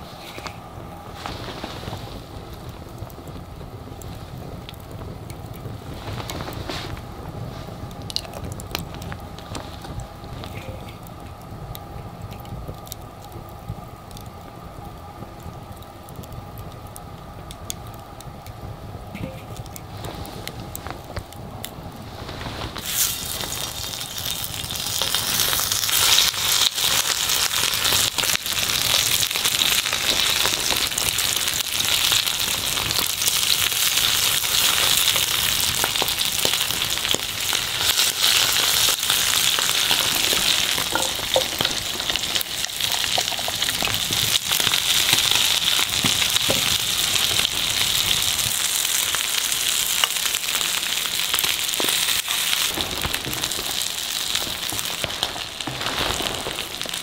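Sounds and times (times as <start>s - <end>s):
wood fire crackling: 0.0s - 57.0s
food sizzling in a pan: 22.0s - 57.0s.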